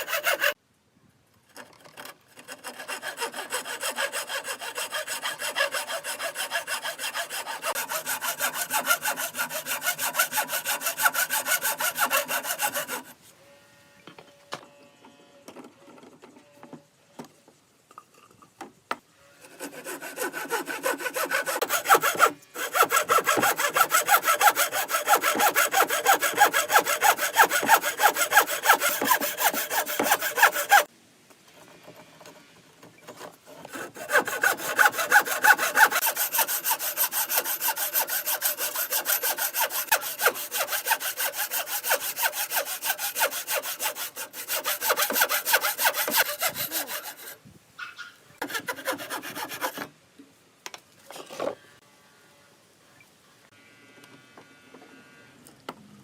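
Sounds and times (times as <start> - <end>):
hand saw cutting wood: 0.0 - 0.6, 1.6 - 13.2, 19.4 - 30.9, 33.0 - 47.4, 48.4 - 49.9.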